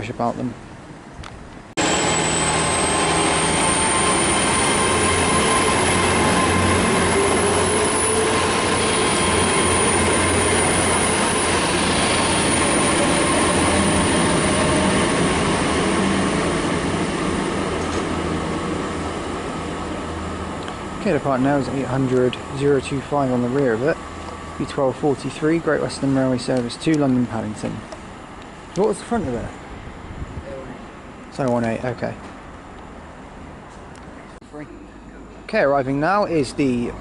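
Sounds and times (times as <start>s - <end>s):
train engines humming: 0.6s - 37.0s
high-pitched wheel squeal: 1.8s - 16.2s.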